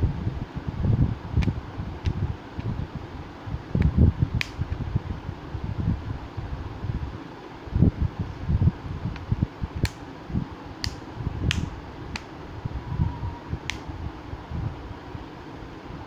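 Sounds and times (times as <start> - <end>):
sharp clicks: 10.8 - 12.3.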